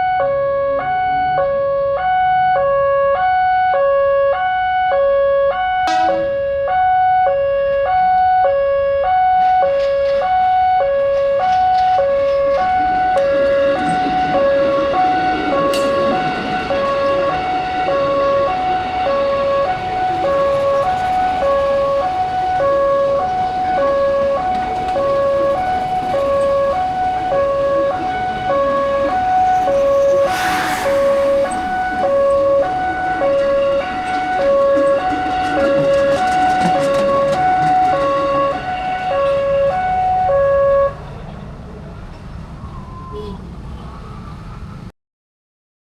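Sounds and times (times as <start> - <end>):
level crossing alarm two tones: 12.6 - 41.0
burst of hiss: 30.1 - 32.6.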